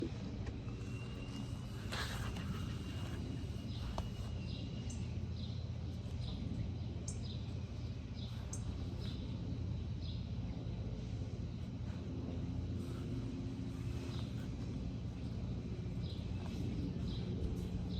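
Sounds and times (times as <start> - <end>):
low outdoor rumble: 0.0 - 17.9
small bird chirping: 0.6 - 10.3.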